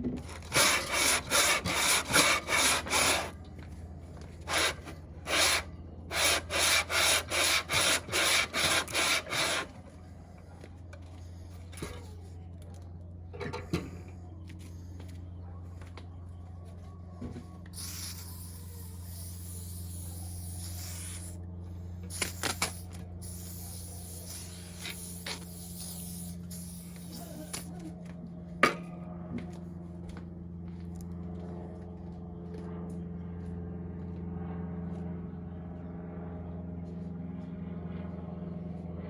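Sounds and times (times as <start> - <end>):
low hum: 0.0 - 39.0
metal scraping on sandpaper: 0.3 - 3.4, 4.5 - 9.8, 17.8 - 21.4, 22.1 - 27.8.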